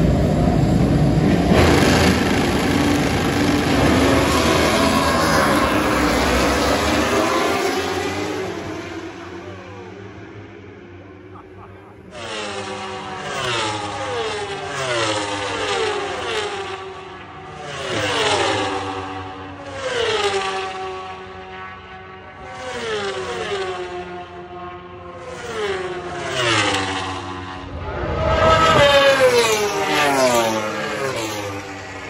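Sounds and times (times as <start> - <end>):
vehicles passing by: 0.0 - 16.4, 25.2 - 32.0.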